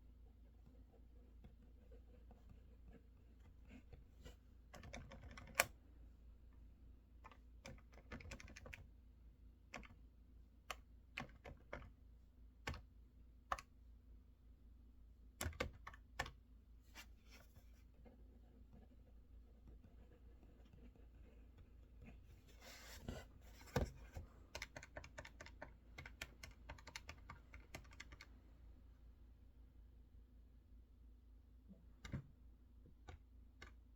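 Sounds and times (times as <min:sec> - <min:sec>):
typing on mechanical keyboard: 0:04.8 - 0:05.8, 0:07.2 - 0:08.8, 0:09.7 - 0:10.0, 0:11.1 - 0:11.9, 0:15.4 - 0:16.4, 0:24.5 - 0:28.3.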